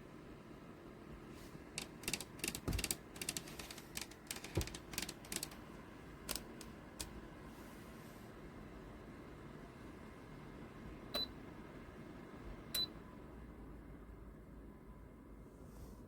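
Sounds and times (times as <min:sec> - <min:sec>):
sharp mechanical clicks and rattles: 0:01.8 - 0:05.6, 0:06.2 - 0:07.2.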